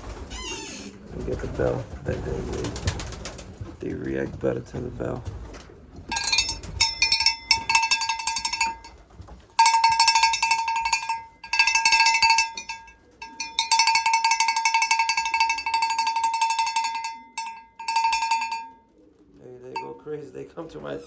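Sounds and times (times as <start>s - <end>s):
bell shaken rapidly: 6.1s - 8.9s, 9.6s - 18.7s.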